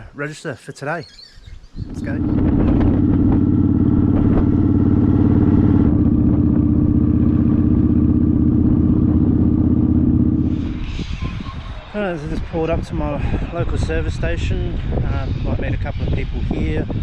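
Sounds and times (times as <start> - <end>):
motorcycle engine running: 1.8 - 11.0.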